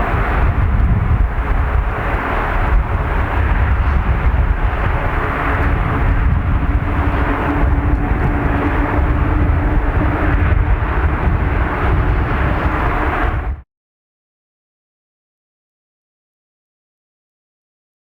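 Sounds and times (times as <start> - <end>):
jet engines roaring: 0.0 - 13.6.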